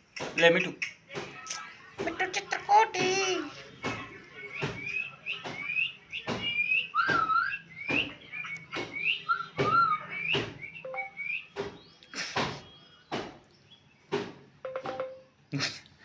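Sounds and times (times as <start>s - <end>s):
parrot whistling: 4.6s - 11.6s.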